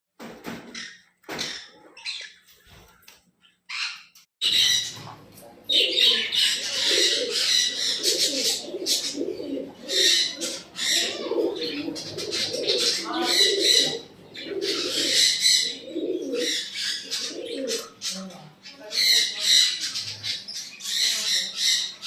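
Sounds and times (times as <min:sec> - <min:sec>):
caged birds chirping and squawking: 0:00.2 - 0:22.0
birds cooing: 0:03.7 - 0:22.0.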